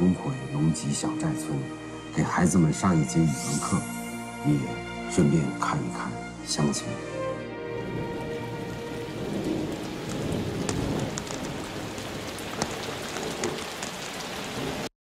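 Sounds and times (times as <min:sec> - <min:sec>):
steady rain hiss: 0:00.0 - 0:14.9.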